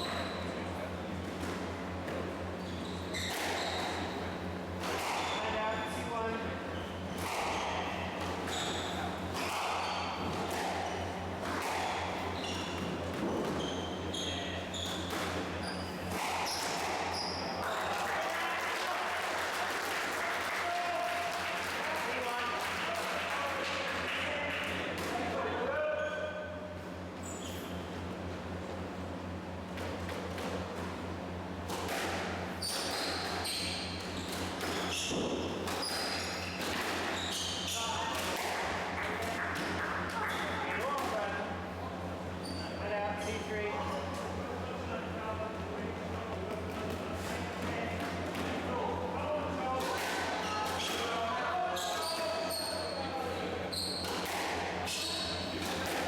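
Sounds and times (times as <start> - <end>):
shoes squeaking on court floor: 0.0 - 0.7, 2.1 - 4.3, 5.0 - 6.0, 6.7 - 18.0, 27.2 - 28.2, 32.5 - 38.5, 42.4 - 44.4, 51.7 - 56.0
low electrical hum: 0.0 - 56.0
squash ball hitting racket and walls: 3.0 - 5.6, 7.0 - 17.7, 31.6 - 41.3, 49.8 - 51.2, 53.7 - 56.0
shoes squeaking on wooden floor: 8.5 - 9.0, 12.4 - 17.6.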